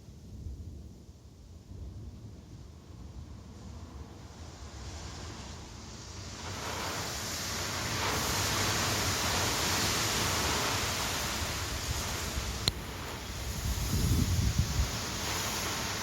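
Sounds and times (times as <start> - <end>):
storm wind gusting: 3.3 - 16.0
wind buffeting microphone: 8.0 - 16.0.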